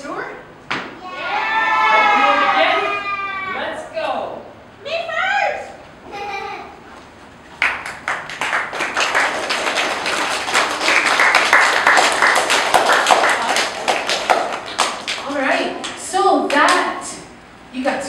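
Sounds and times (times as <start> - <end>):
audience applauding: 7.6 - 15.4.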